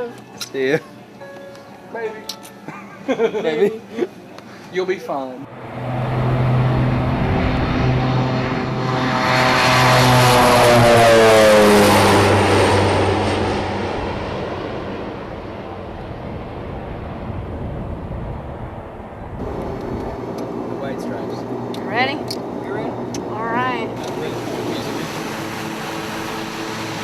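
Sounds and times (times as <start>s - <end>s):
propeller airplane passing: 5.4s - 27.0s.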